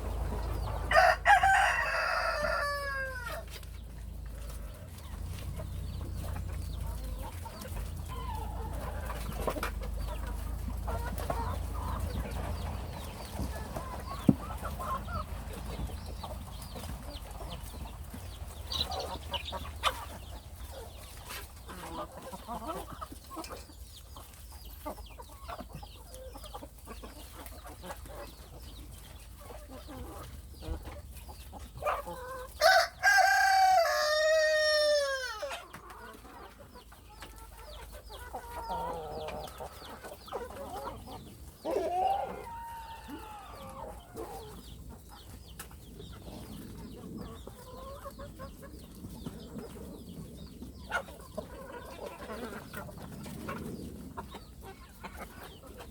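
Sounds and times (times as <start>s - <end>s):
chickens clucking softly: 0.0s - 55.9s
rooster crowing: 0.9s - 3.4s, 32.6s - 35.5s, 41.7s - 43.9s.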